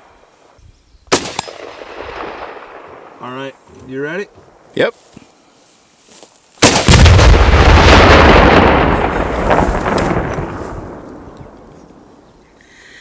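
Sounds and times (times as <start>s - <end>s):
explosion blast: 6.6s - 11.6s
rumbling echo: 6.7s - 12.2s.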